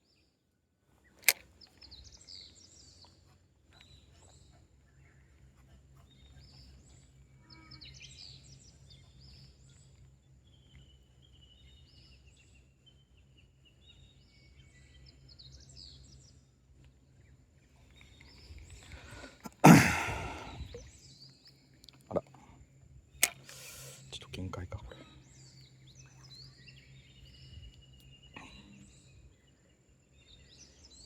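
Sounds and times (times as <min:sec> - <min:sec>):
birds chirping and calling: 0:17.8 - 0:21.0.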